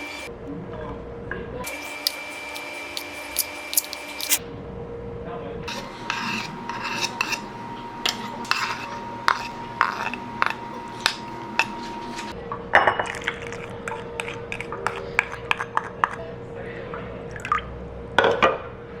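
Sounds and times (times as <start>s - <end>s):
dishes and utensils clinking: 5.7s - 16.2s.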